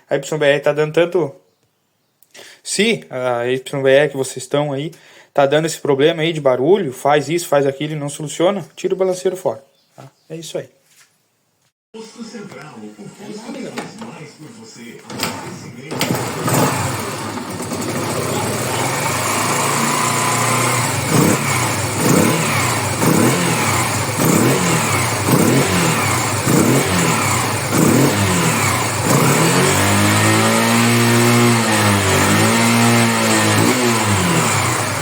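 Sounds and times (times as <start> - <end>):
motorcycle engine revving: 15.0 - 35.0.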